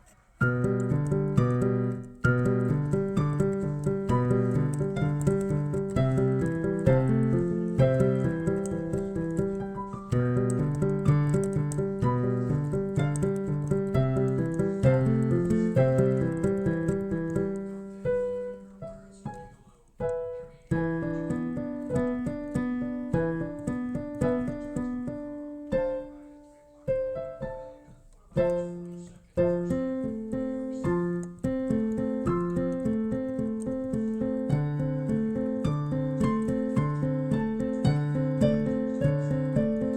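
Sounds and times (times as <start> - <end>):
solo piano melody: 0.0 - 39.9.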